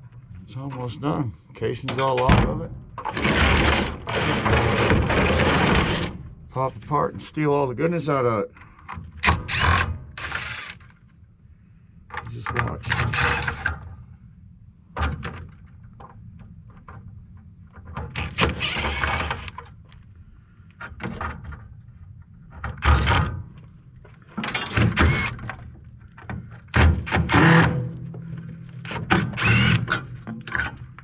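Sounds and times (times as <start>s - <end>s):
steady low hum: 0.0s - 31.0s
metal knocking and scraping: 1.8s - 6.2s.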